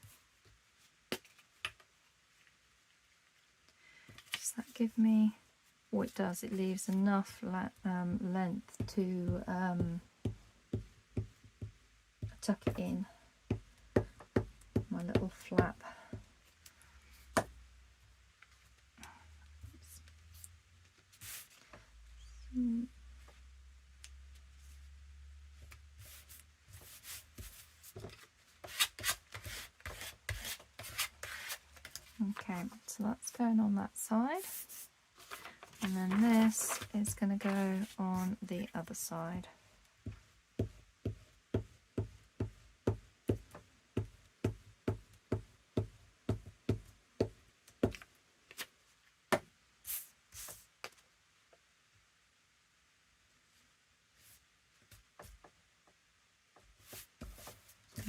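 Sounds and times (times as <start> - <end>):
paper rustling and sliding: 20.3 - 21.7, 34.5 - 38.5
person humming: 22.4 - 23.0.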